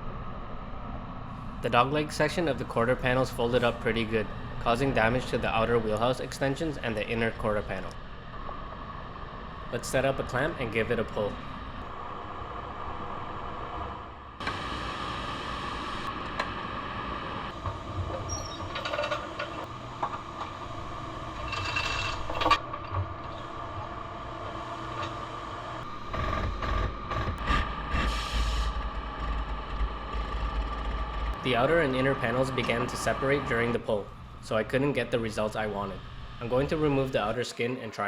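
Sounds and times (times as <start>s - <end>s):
mechanical whine: 0.0s - 38.0s
low rumble: 16.0s - 37.0s
metallic clicks and clanks: 18.1s - 20.2s.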